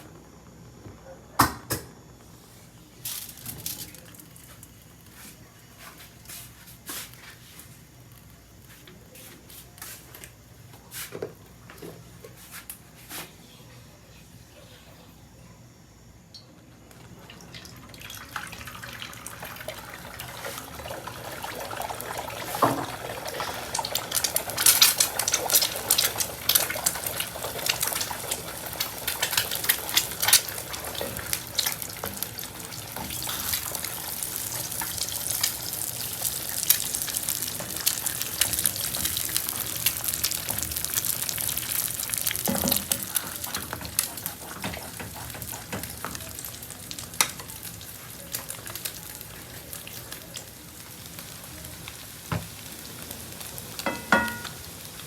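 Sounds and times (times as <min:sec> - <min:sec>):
food sizzling in a pan: 0:02.4 - 0:13.3, 0:16.8 - 0:55.0.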